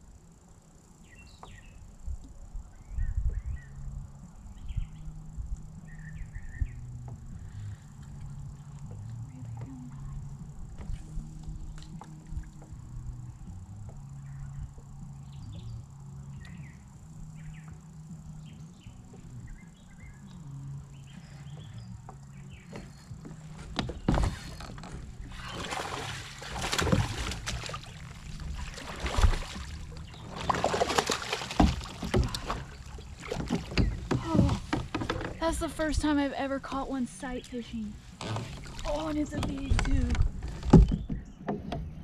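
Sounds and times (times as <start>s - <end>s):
steady low hum: 0.0s - 42.0s
faint chirps: 14.1s - 26.1s
fish splashing in water: 24.2s - 35.0s.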